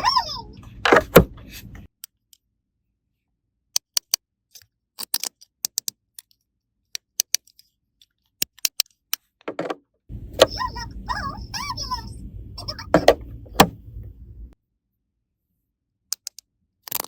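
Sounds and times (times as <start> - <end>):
plastic toy pieces clicking: 3.7 - 9.3, 16.1 - 17.0.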